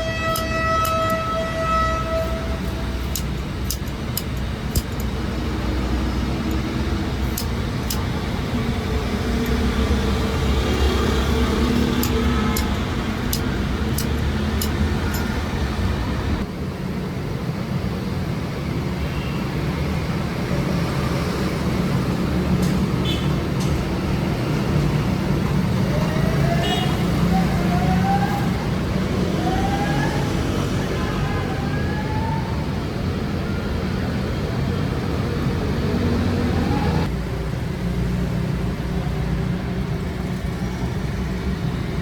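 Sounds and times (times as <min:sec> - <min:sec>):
sharp clicks: 0:03.1 - 0:05.2, 0:07.3 - 0:08.2, 0:11.7 - 0:15.4.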